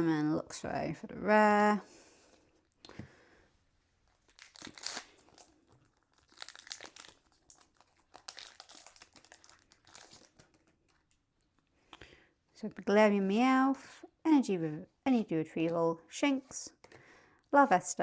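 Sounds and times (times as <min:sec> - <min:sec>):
foil wrapper crinkling and tearing: 0:04.1 - 0:11.2.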